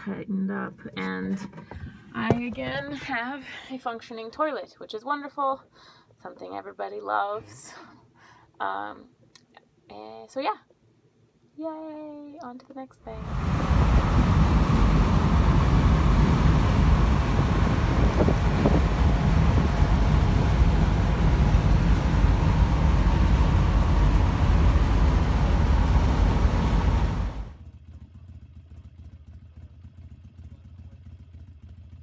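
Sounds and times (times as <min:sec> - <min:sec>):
vehicle road and wind noise: 0:13.1 - 0:27.6.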